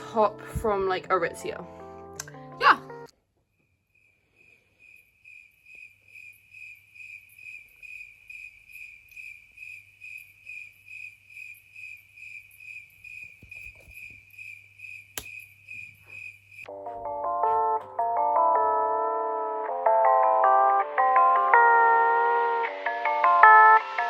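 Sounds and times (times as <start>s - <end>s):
cricket chirping: 3.4s - 16.7s.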